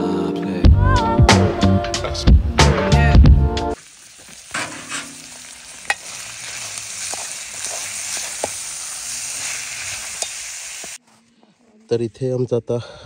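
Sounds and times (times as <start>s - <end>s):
food sizzling in a pan: 3.8s - 11.0s.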